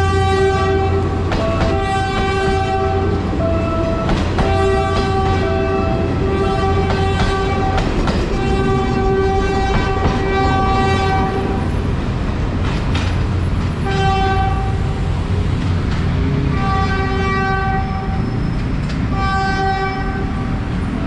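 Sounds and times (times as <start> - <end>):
train horn blasts: 0.0 - 11.6, 13.8 - 14.9, 16.5 - 18.5, 19.1 - 20.6
train passing with rumble: 0.0 - 21.0.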